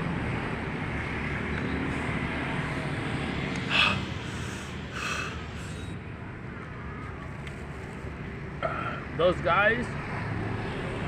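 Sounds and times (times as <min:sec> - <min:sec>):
street noise hum: 0:00.0 - 0:11.0
person hissing breaths through mouth: 0:03.6 - 0:06.0.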